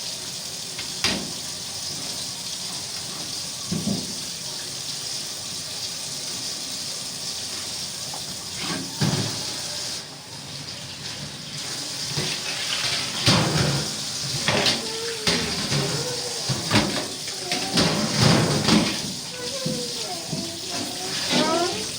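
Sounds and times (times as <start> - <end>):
water running from tap into sink: 0.0 - 21.9.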